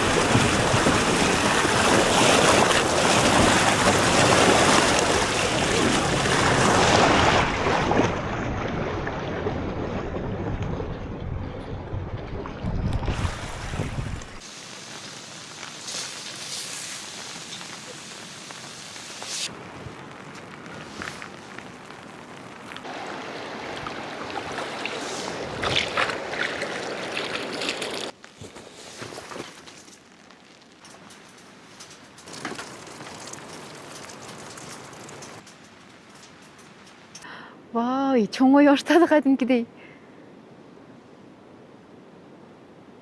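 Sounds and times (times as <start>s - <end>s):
rain patter: 0.0s - 8.0s, 8.6s - 28.2s, 28.9s - 37.3s
wind buffeting microphone: 0.0s - 14.4s.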